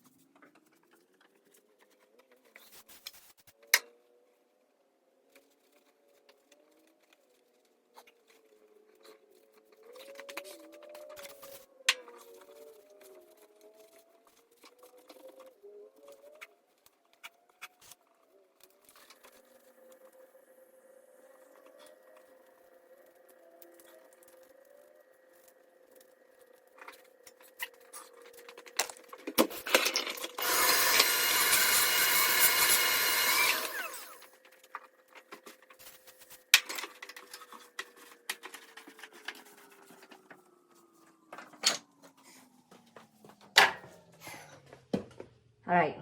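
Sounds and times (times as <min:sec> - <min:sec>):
clicks and knocks from debris: 0:26.7 - 0:30.4
small electric motor humming: 0:30.3 - 0:34.4.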